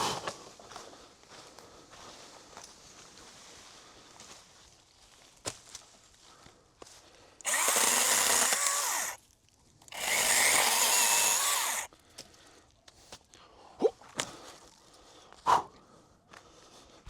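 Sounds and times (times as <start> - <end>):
handheld power tool motor: 7.4 - 9.2, 9.9 - 11.9.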